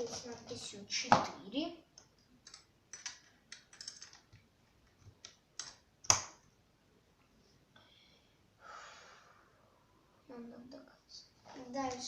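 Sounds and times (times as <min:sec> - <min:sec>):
plastic parts clicking and clattering: 0:02.4 - 0:06.4.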